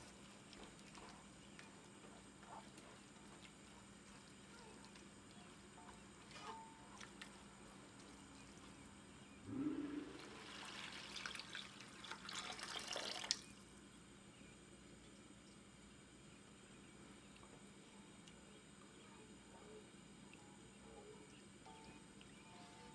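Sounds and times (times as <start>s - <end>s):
water pouring into a pot: 10.0s - 13.5s.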